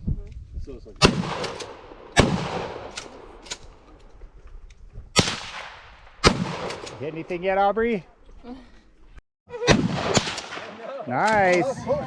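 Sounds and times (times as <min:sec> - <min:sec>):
rifle gunshots with echo: 0:01.0 - 0:03.9, 0:05.2 - 0:07.5, 0:09.7 - 0:11.4.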